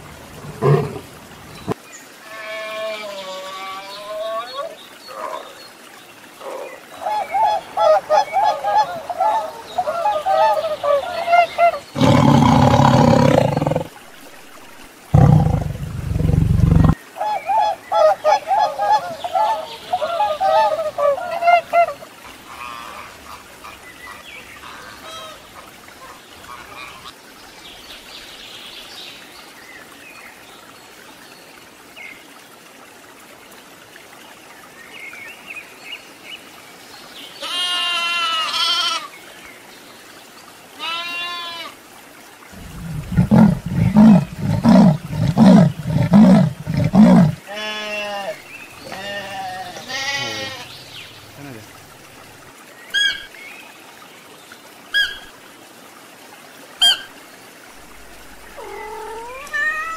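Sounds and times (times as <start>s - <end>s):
swan call: 7.0s - 11.8s, 17.2s - 23.4s, 56.8s - 57.1s, 58.6s - 59.9s
loud bleats: 37.4s - 39.1s, 42.8s - 50.7s
faint bird calls: 42.6s - 47.4s, 58.5s - 59.9s.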